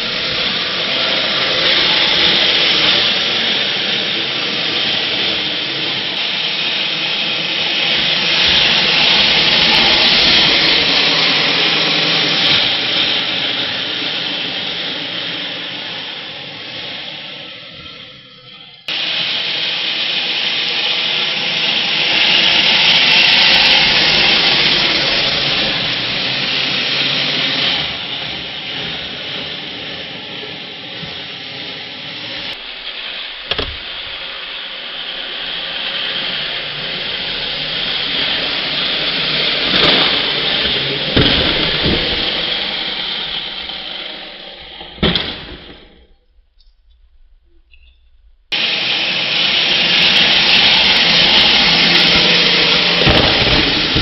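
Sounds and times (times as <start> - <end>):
toy truck motor whirring: 0.0 - 46.4
sharp knocks: 33.5 - 34.2.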